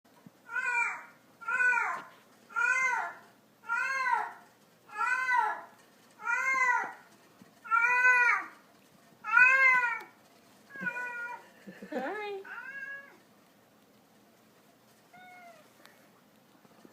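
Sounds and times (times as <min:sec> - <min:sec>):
cat meowing: 0:00.5 - 0:05.6, 0:06.2 - 0:07.0, 0:07.7 - 0:08.5, 0:09.2 - 0:11.4, 0:12.4 - 0:13.2, 0:15.1 - 0:15.8.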